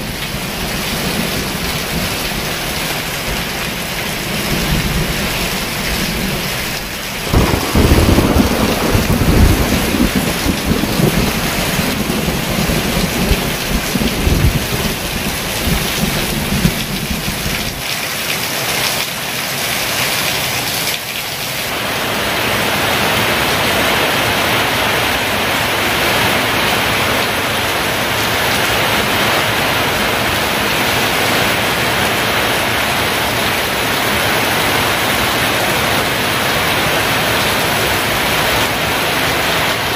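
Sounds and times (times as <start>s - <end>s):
thunder rumbling: 0.0s - 17.8s
heavy rain falling: 0.0s - 39.9s.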